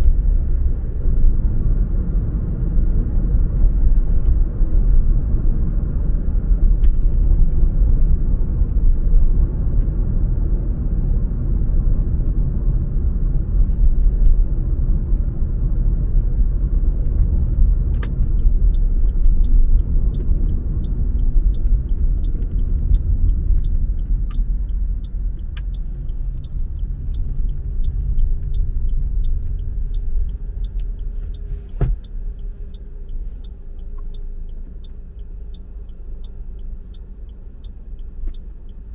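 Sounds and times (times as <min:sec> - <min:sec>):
car driving on road: 0:00.0 - 0:38.9
light regular ticking: 0:13.7 - 0:38.9.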